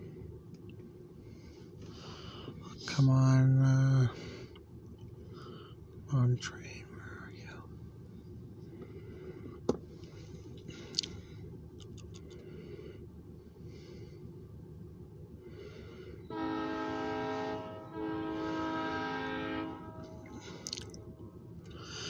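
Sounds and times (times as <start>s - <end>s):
low steady rumble: 0.0s - 22.0s
locomotive horn blasts: 16.3s - 20.6s.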